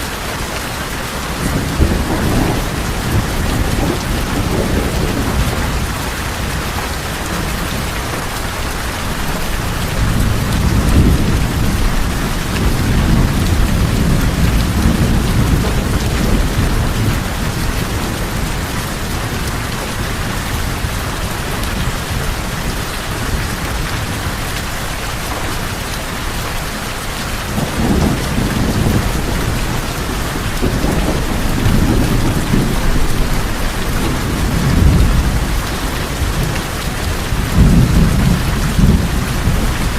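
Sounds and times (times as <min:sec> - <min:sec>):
heavy rain on tin roofs: 0:00.0 - 0:39.9
distant thunder rolling: 0:01.2 - 0:08.4, 0:27.4 - 0:39.9.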